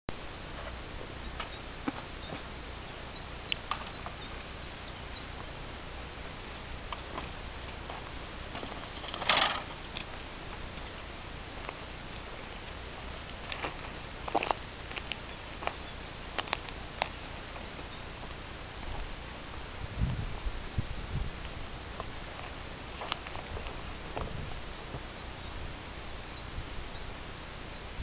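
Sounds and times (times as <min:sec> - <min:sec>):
small birds chirping: 0:00.3 - 0:19.6, 0:20.8 - 0:28.0
loud rustling: 0:00.4 - 0:19.2.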